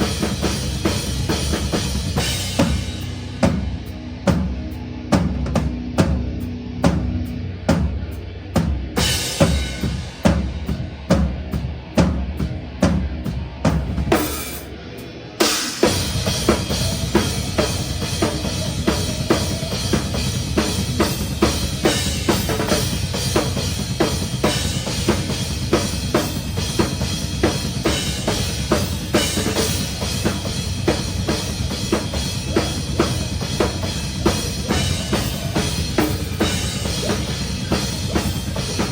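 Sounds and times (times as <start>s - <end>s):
low bass: 0.0s - 14.1s
metal band playing loud: 0.0s - 38.9s.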